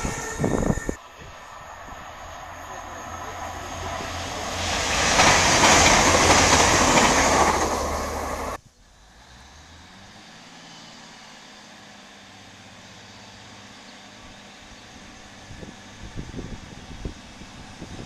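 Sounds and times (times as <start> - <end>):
train passing at speed: 0.0 - 18.0
faint diesel engine hum: 7.7 - 18.0.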